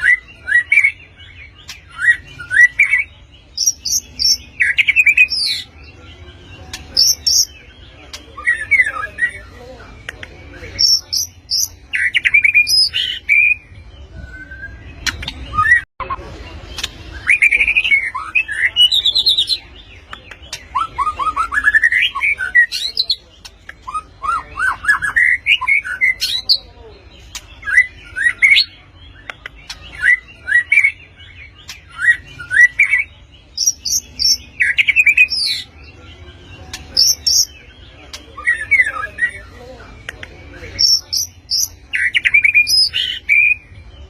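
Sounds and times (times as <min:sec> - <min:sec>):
bird singing whistled phrases: 0:10.8 - 0:15.9.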